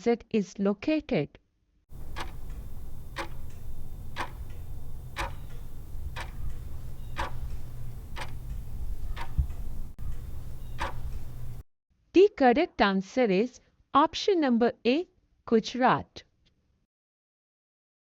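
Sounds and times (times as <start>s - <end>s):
clock ticking: 1.9s - 11.6s
steady low hum: 1.9s - 11.6s.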